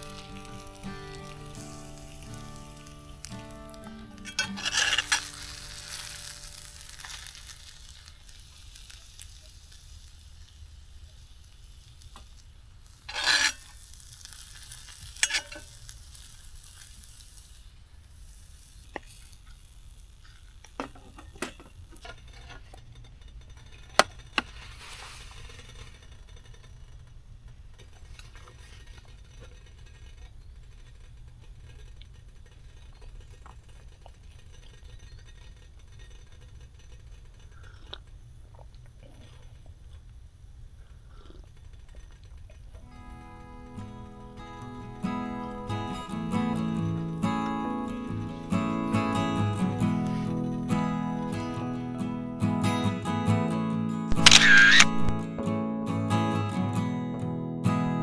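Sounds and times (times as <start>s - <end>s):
food sizzling in a pan: 0.0s - 22.3s, 23.4s - 26.5s, 42.8s - 55.2s
utensil scraping pan: 4.2s - 8.1s, 13.1s - 15.9s.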